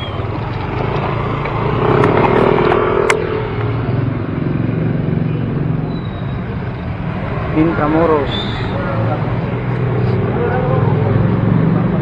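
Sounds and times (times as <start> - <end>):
motorcycle running close by: 0.0 - 12.0
road traffic: 0.0 - 12.0
sharp click: 2.0 - 3.7.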